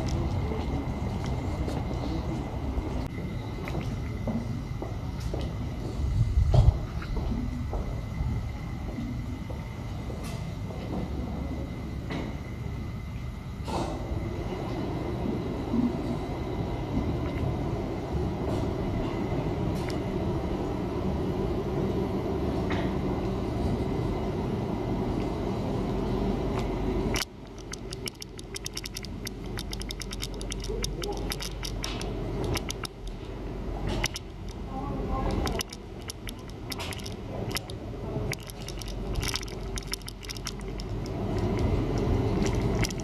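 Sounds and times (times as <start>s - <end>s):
tram rumbling on rails: 0.0s - 43.0s
sharp clicks: 26.6s - 33.2s, 33.9s - 34.6s, 35.3s - 43.0s.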